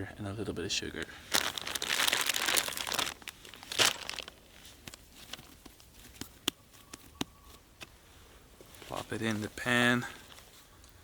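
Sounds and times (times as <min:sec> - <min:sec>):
bread dough tearing rustle: 0:01.0 - 0:06.4.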